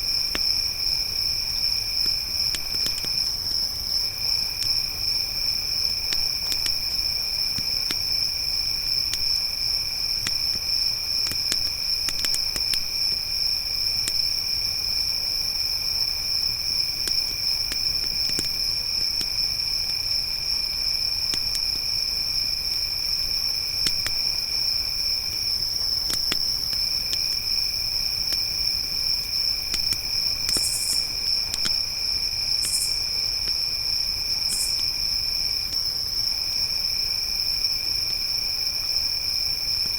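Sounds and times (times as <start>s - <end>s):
crickets chirping: 0.0s - 39.9s
lower-pitched cricket chirping: 0.0s - 39.9s
campfire crackling: 0.1s - 15.6s, 22.6s - 33.6s.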